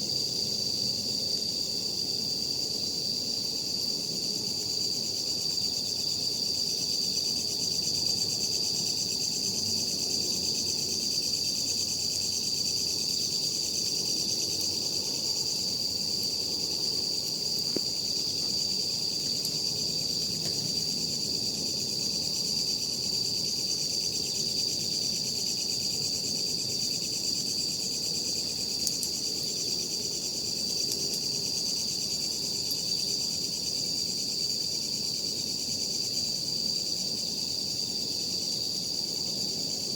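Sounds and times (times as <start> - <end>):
night insects singing: 0.0 - 39.9
campfire crackling: 15.5 - 22.6, 28.0 - 32.9.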